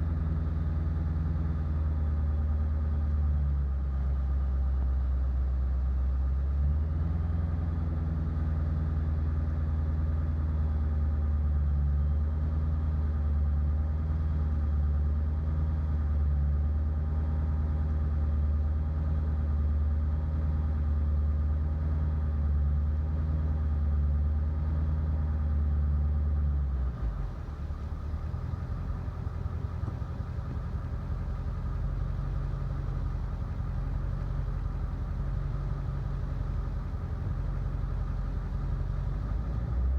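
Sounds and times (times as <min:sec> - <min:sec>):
diesel engine idling roughly: 0:27.0 - 0:39.9.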